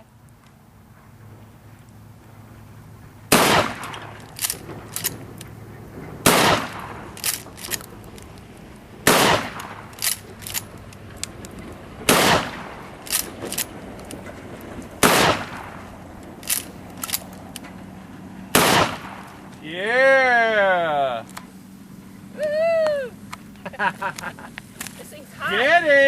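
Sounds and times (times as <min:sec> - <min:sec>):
shotgun shots: 0:03.3 - 0:05.2, 0:06.2 - 0:07.8, 0:09.0 - 0:10.6, 0:12.1 - 0:13.7, 0:15.0 - 0:17.2, 0:18.5 - 0:19.4
shotgun pump clacks: 0:03.3 - 0:05.5, 0:06.3 - 0:08.4, 0:09.1 - 0:14.2, 0:16.1 - 0:17.7.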